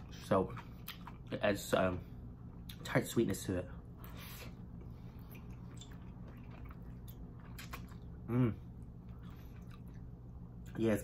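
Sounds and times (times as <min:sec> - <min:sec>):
person chewing noodles: 0:00.0 - 0:01.4, 0:03.9 - 0:10.7
short hummed vocal sound: 0:08.2 - 0:09.0.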